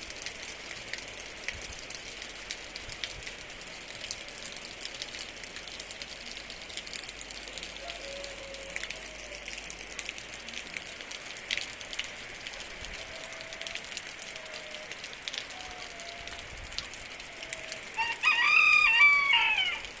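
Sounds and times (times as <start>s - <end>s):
rooster crowing: 7.5s - 9.5s, 17.4s - 20.0s.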